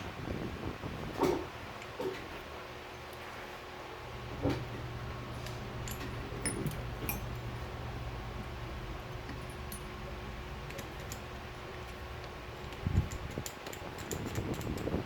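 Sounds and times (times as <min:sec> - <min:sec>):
steady low hum: 0:00.0 - 0:15.0
small metal parts clicking: 0:05.4 - 0:07.5, 0:09.2 - 0:10.0, 0:10.6 - 0:15.0.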